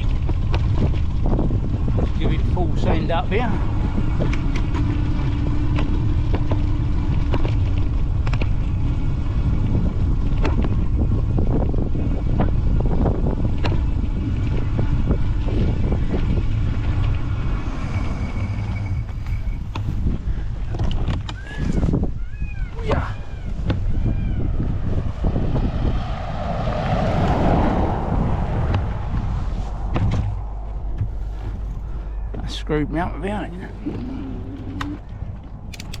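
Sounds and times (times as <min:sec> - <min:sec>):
wind buffeting microphone: 0:00.0 - 0:36.0
bike clicks and knocks: 0:04.1 - 0:08.8, 0:10.2 - 0:11.1, 0:13.4 - 0:14.5, 0:19.7 - 0:21.9, 0:34.6 - 0:36.0.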